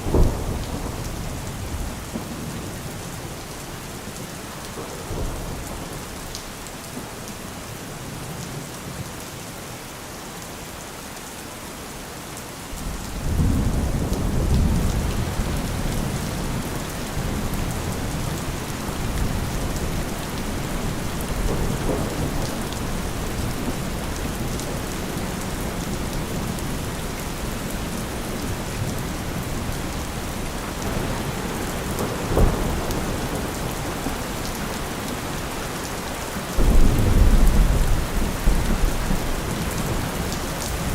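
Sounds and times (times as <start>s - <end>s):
rain falling: 0.0s - 40.9s
low thunder rumble: 12.8s - 30.2s, 30.8s - 40.1s
sharp thunderclap: 20.6s - 24.4s, 30.8s - 35.5s, 36.6s - 39.3s.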